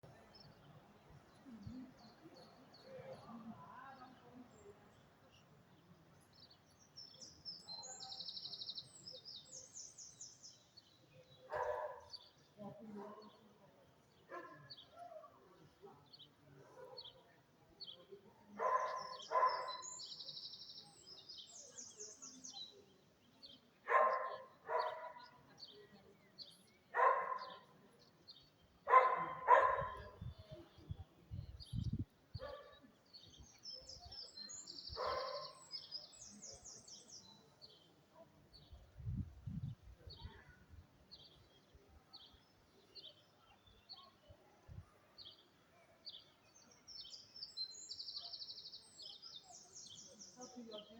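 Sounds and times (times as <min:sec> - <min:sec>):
dog barking: 0:11.5 - 0:12.2, 0:14.3 - 0:15.3, 0:18.6 - 0:19.9, 0:23.9 - 0:25.4, 0:26.9 - 0:27.7, 0:28.9 - 0:30.2, 0:32.4 - 0:32.9, 0:35.0 - 0:35.6.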